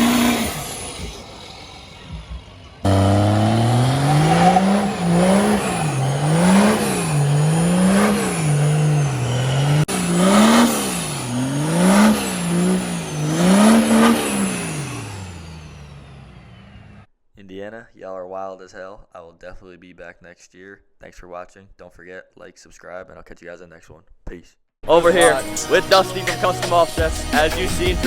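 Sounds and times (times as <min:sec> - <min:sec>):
diesel truck engine revving: 0:00.0 - 0:17.1, 0:24.9 - 0:28.0.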